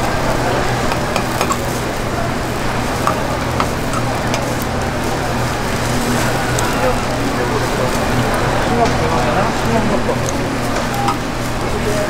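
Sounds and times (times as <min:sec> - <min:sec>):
food sizzling in hot oil: 0:00.1 - 0:12.0
metal tongs clicking on pan: 0:00.9 - 0:01.8, 0:03.0 - 0:04.7, 0:10.2 - 0:11.3.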